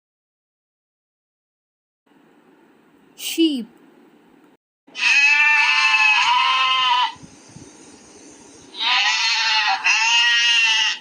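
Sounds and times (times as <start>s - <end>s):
sheep bleating: 4.9s - 7.2s, 8.8s - 11.0s.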